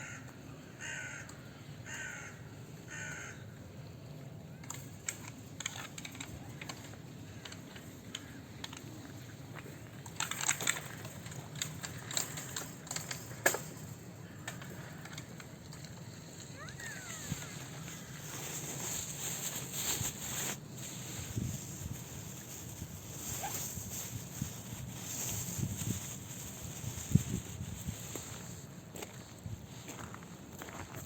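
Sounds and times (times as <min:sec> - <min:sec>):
crow cawing: 0:00.0 - 0:03.4
low outdoor hum: 0:00.0 - 0:31.0
sharp clicks and crackles: 0:04.6 - 0:17.6.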